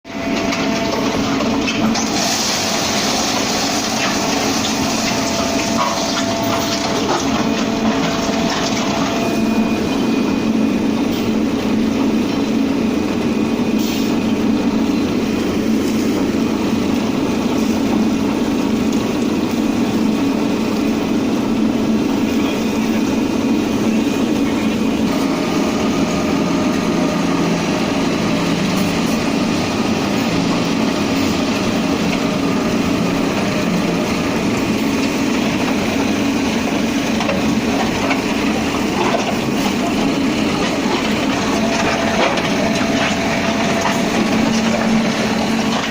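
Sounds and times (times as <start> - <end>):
concrete pump machine running: 0.0 - 45.9.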